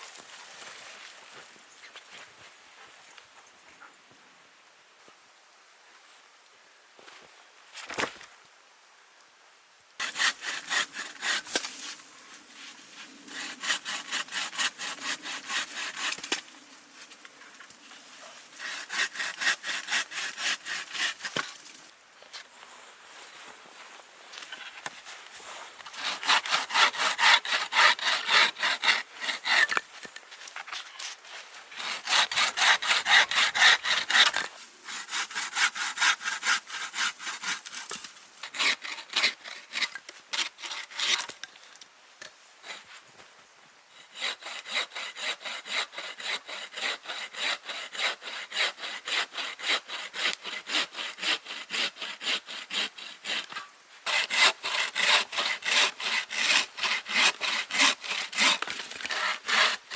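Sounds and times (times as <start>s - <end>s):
hand saw cutting wood: 10.0s - 12.0s, 13.2s - 16.4s, 18.6s - 21.6s, 25.8s - 29.9s, 31.7s - 41.4s, 44.0s - 59.9s.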